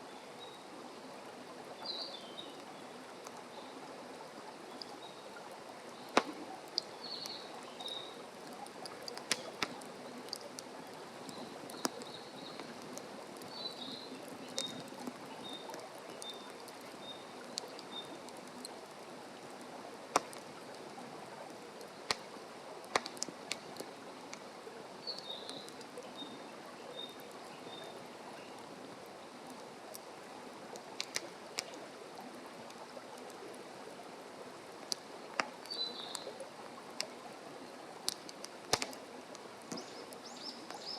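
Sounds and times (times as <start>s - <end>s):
campfire crackling: 0.2s - 40.9s
small bird singing: 6.9s - 8.2s, 13.5s - 18.2s, 35.7s - 36.3s, 39.7s - 40.9s.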